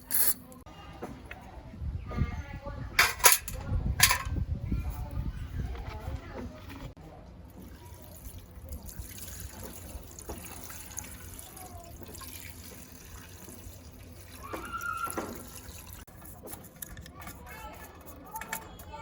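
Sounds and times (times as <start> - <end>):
water running and trickling: 7.5 - 16.1.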